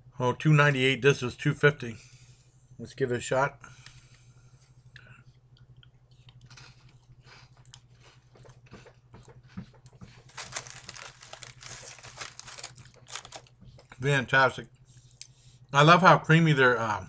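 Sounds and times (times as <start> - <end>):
person crunching a cracker: 10.2 - 13.5.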